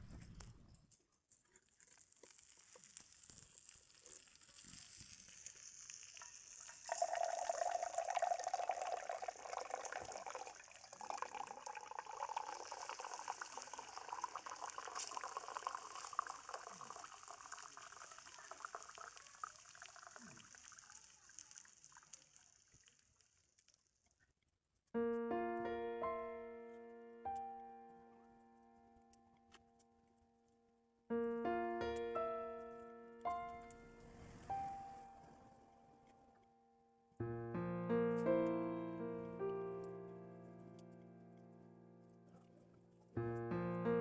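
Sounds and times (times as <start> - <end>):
liquid hissing and bubbling: 1.8 - 23.4, 33.8 - 35.5.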